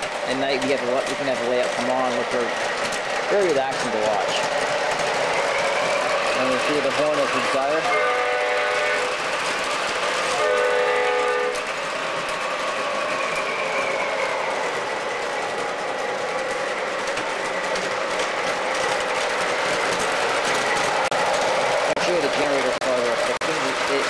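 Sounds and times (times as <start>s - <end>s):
model trains running on track: 0.0s - 24.0s
model locomotive electronic horn: 7.8s - 9.1s, 10.4s - 11.6s.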